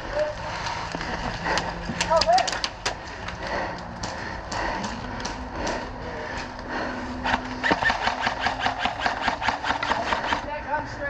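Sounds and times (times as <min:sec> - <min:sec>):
airsoft gun firing rapidly: 0:07.3 - 0:10.5.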